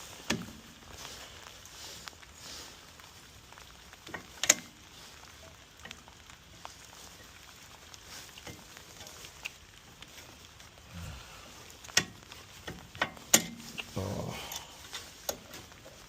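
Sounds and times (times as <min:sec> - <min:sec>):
sharp metallic clicks and taps: 0:04.1 - 0:04.8, 0:11.9 - 0:13.9.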